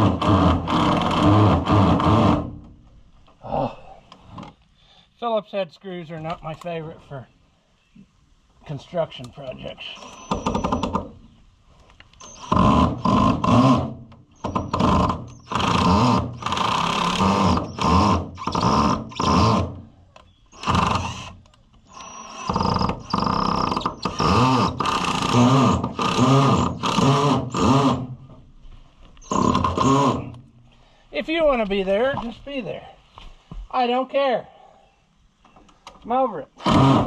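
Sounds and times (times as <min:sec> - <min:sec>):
power drill driving screws: 0:00.0 - 0:02.6, 0:12.2 - 0:19.8, 0:20.5 - 0:28.2, 0:29.2 - 0:30.4, 0:36.6 - 0:37.0.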